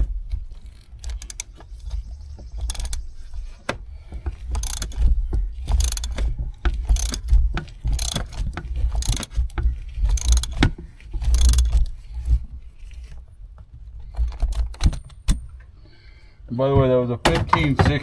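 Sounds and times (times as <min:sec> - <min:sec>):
ratchet wrench clicking: 0:00.6 - 0:03.6, 0:04.3 - 0:11.9.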